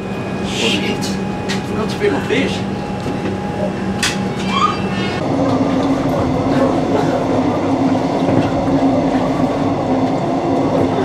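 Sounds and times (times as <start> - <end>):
train carriage rattling hum: 0.0 - 11.0
short high squeak: 4.4 - 5.2.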